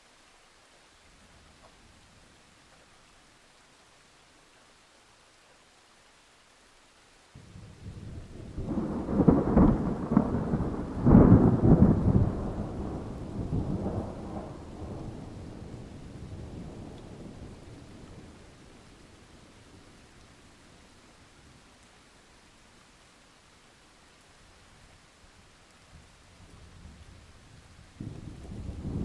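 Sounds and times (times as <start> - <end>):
rain hissing: 0.0 - 29.0
thunder rumbling and crashing: 8.0 - 15.2.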